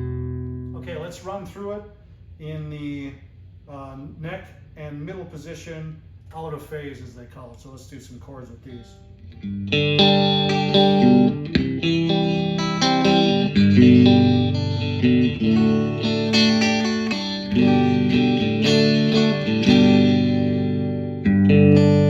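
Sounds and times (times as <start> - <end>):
electric guitar strumming chords: 9.2 - 22.0.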